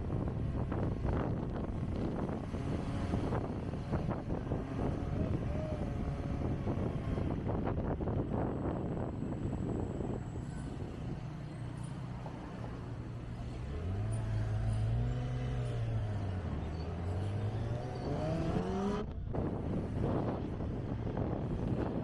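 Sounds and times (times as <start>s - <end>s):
wind noise: 0.0s - 11.4s, 17.4s - 22.0s.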